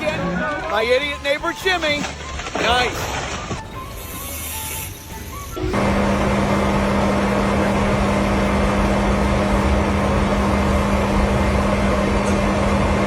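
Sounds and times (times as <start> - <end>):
loud mechanical drone: 5.6 - 13.0.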